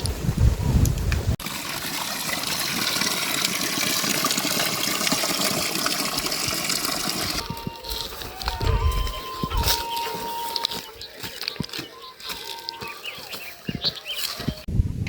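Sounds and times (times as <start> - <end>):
rushing water: 0.0 - 14.7.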